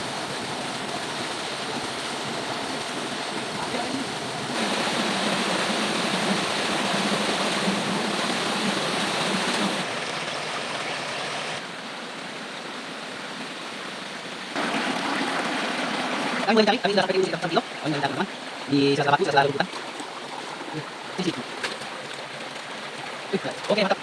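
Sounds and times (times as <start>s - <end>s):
rushing river water: 0.0s - 24.0s.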